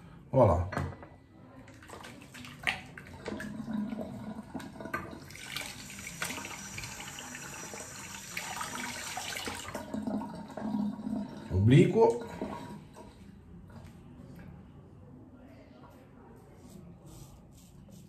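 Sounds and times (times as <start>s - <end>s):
tap water running into sink: 1.7s - 13.1s.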